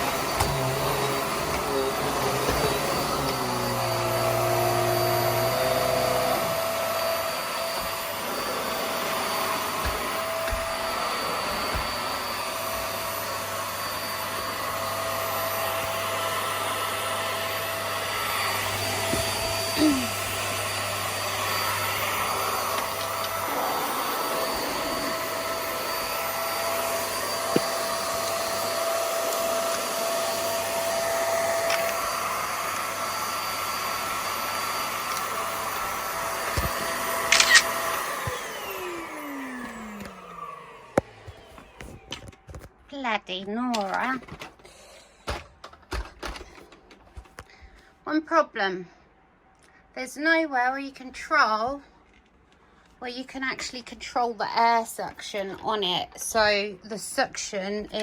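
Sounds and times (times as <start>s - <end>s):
upright vacuum cleaner running: 0.0s - 42.8s.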